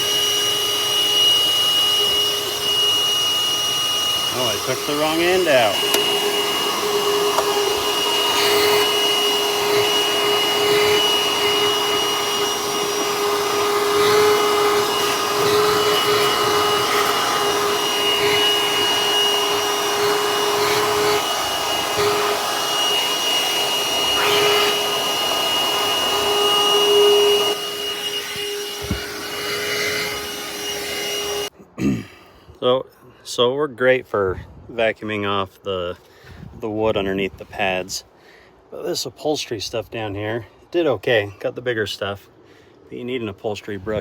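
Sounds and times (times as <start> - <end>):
handheld vacuum running: 0.0 - 31.5.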